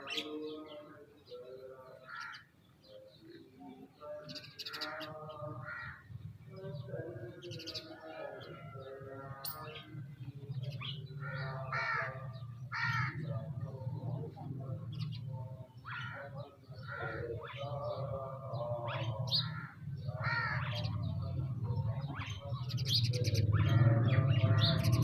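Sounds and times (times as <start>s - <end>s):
small birds chirping: 0.0s - 25.0s
crows cawing: 2.0s - 2.5s, 4.6s - 6.1s, 11.2s - 13.3s, 15.8s - 17.4s, 19.4s - 20.9s.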